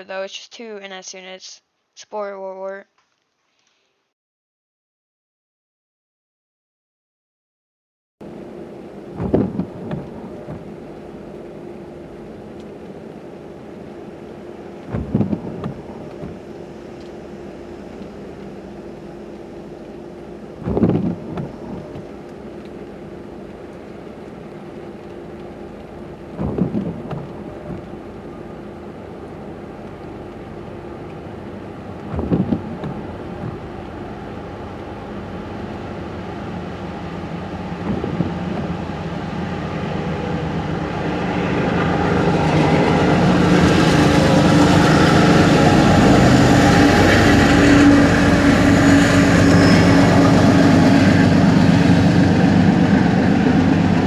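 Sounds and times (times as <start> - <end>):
diesel train engine and rails: 8.2 - 54.0
rain on a car: 8.5 - 39.9.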